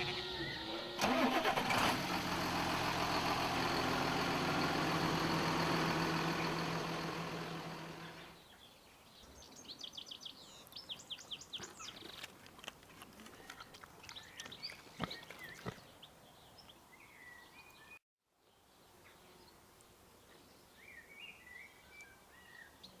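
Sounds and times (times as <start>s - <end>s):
birds chirping and singing: 0.0s - 1.0s
tractor engine running: 0.0s - 8.4s.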